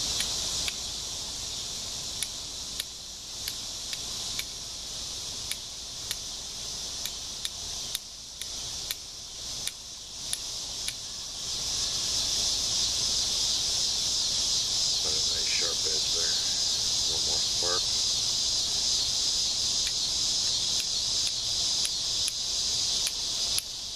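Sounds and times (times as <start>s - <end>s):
high insect chorus: 0.0s - 23.9s
steel striker clicking on flint: 0.2s - 0.8s, 2.2s - 4.6s, 5.4s - 6.3s, 7.0s - 11.0s, 20.8s - 22.4s, 23.0s - 23.8s.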